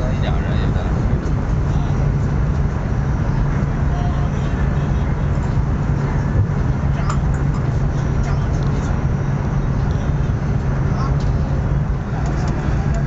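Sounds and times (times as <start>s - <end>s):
constant hum: 0.0s - 13.0s
train running rumble: 0.0s - 13.0s.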